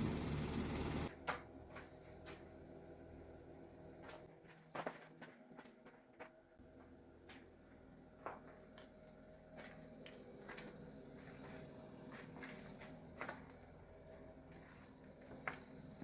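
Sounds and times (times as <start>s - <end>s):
faint steady hum: 0.0s - 1.1s.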